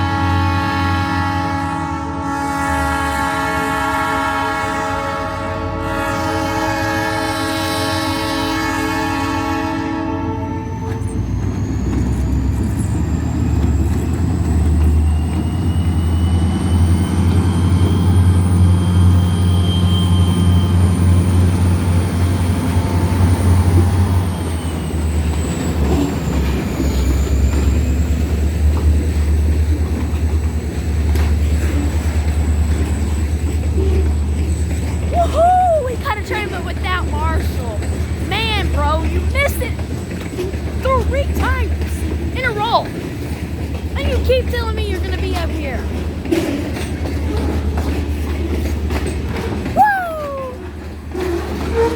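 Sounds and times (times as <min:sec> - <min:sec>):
train rumbling past: 0:00.0 - 0:51.9.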